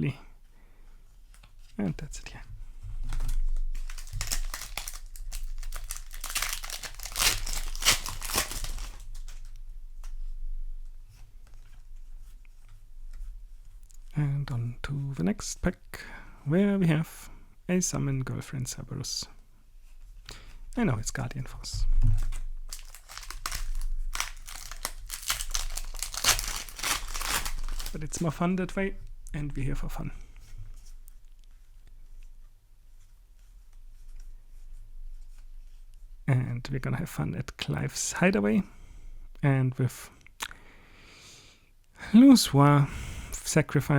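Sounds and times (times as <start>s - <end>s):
wrapper crinkling and tearing: 3.1s - 9.6s, 22.3s - 28.4s.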